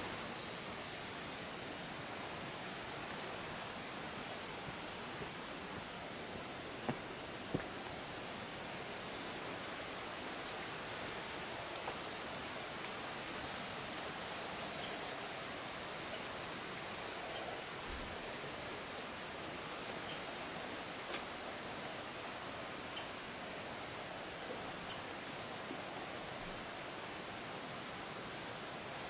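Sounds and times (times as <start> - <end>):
running water hiss: 0.0 - 29.0
faint drip-like ticks: 4.6 - 27.2.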